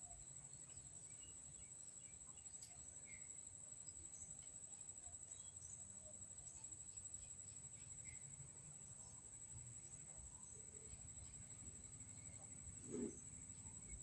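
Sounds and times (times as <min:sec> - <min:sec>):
faint chirps: 0:00.0 - 0:14.0.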